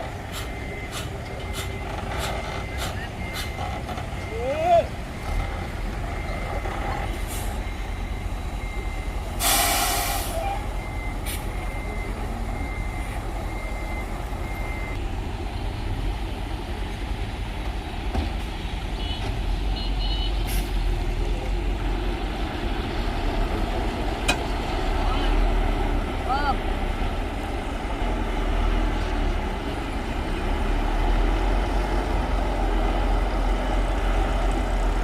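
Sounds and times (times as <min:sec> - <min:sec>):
diesel machinery rumbling: 0:00.0 - 0:35.0
burst of hiss: 0:09.4 - 0:10.4.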